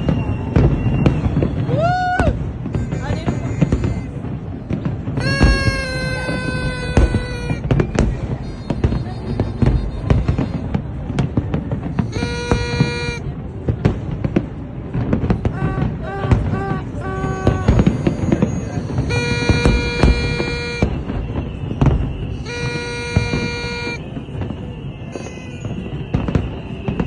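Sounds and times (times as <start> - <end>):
fireworks banging and crackling: 0.0 - 27.0
horn sounding: 5.2 - 7.8, 12.0 - 13.3, 18.9 - 21.2, 22.3 - 24.2, 25.1 - 26.0.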